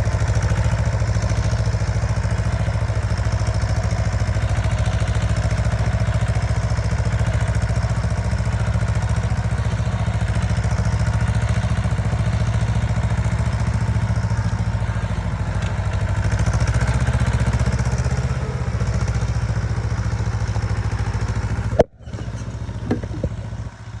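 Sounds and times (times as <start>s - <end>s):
tractor diesel engine chugging: 0.0s - 24.0s
knocks: 21.7s - 23.4s.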